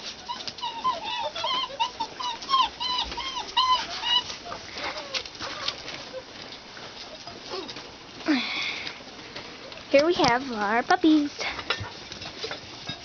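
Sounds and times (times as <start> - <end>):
puppies whining and squeaking: 0.0 - 8.0.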